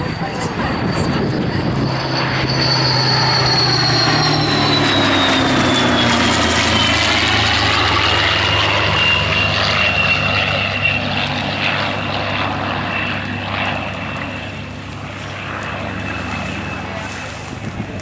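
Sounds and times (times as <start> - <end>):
high tone: 0.0 - 10.2
propeller aircraft flying by: 0.0 - 18.0.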